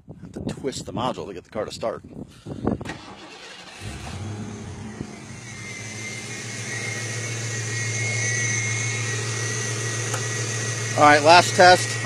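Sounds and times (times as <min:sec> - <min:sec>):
car engine starting and running: 0:02.8 - 0:12.0.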